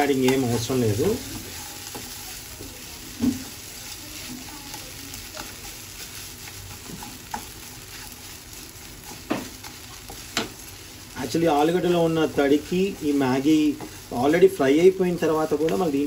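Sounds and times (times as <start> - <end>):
food sizzling in a pan: 0.0 - 16.0
wooden spatula stirring and scraping: 0.0 - 16.0
spatula knocking on pan: 9.2 - 9.7.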